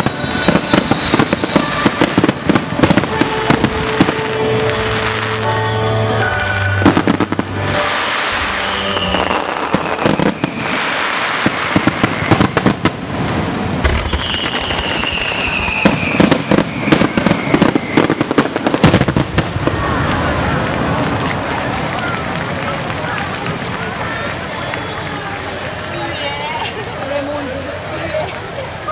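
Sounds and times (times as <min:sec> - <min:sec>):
long falling whistles: 0:00.0 - 0:02.4, 0:07.8 - 0:12.6, 0:14.0 - 0:18.6
fireworks bursting: 0:00.0 - 0:28.9
fireworks crackling: 0:00.0 - 0:28.9.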